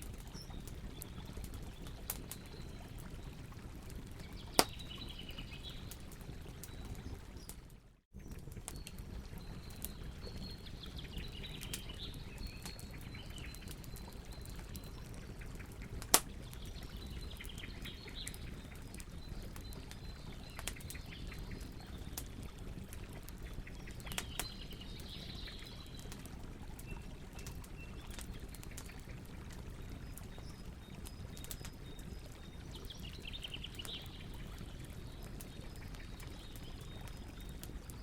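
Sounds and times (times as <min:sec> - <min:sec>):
campfire crackling: 0:00.0 - 0:38.0.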